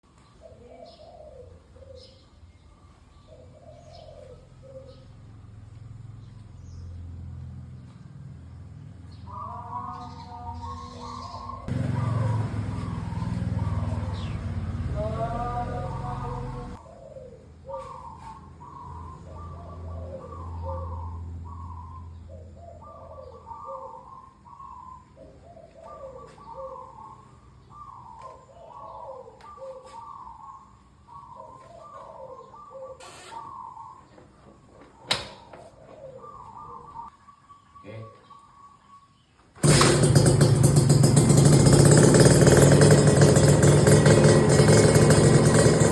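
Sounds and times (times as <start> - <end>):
bird calling: 0.0 - 5.4, 9.0 - 39.9.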